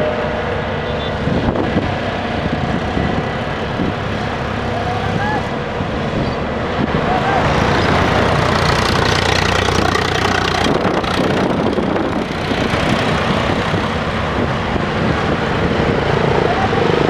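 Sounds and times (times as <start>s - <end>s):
diesel engine running under work: 0.0s - 17.0s.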